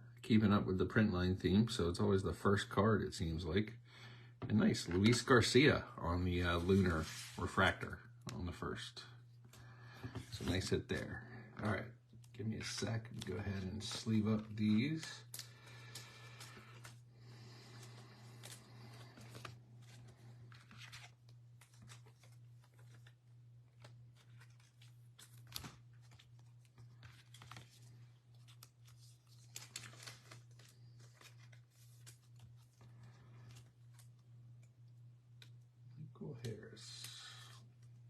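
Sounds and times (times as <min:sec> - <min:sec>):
steady low hum: 0:00.0 - 0:38.0
cards sliding into plastic sleeves: 0:06.6 - 0:07.6, 0:17.6 - 0:23.1.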